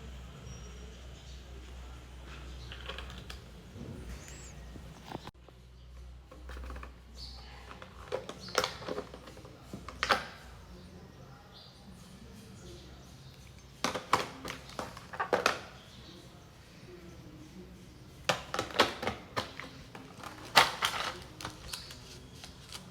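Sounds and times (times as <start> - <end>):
hard objects clicking and tapping: 13.4 - 16.0, 18.2 - 22.0.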